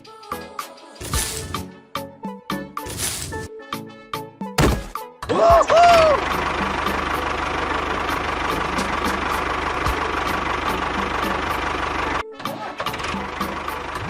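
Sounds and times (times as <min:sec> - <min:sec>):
small engine idling: 0:06.1 - 0:14.0.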